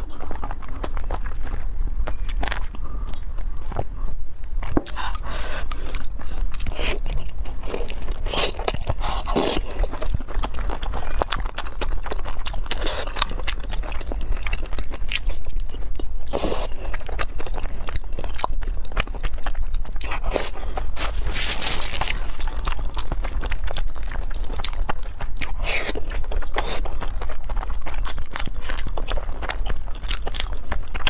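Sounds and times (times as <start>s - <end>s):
small crunches: 0.0s - 4.8s, 19.9s - 31.0s
chewing and biting: 0.0s - 31.0s.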